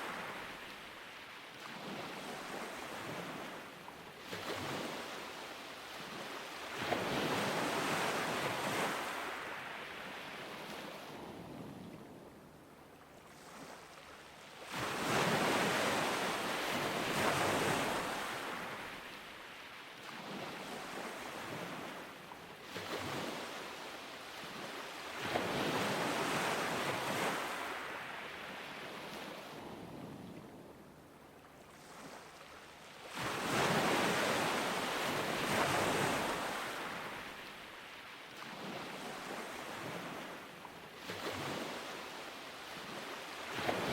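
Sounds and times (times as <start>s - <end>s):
ocean waves breaking: 13.2s - 30.1s, 31.6s - 43.9s.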